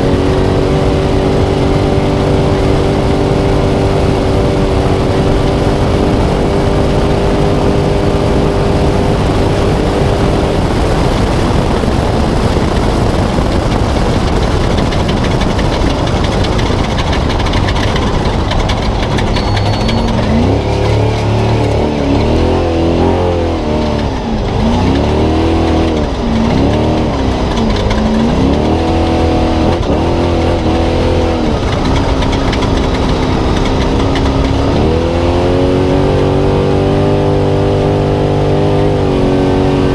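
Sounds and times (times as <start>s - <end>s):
road noise: 0.0s - 39.9s
truck engine revving: 0.0s - 39.9s
loud rattling: 10.2s - 36.1s.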